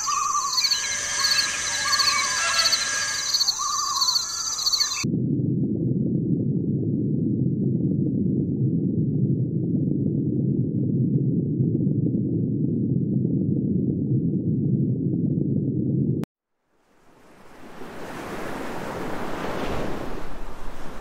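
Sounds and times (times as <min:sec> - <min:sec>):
muffled underwater rushing: 0:16.9 - 0:21.0.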